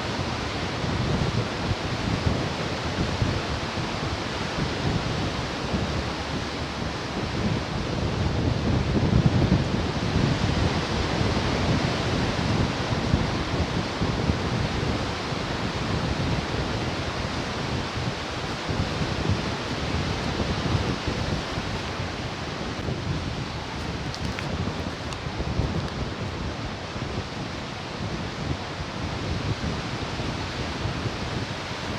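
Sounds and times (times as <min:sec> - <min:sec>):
ocean surf breaking on shore: 0:09.8 - 0:26.4.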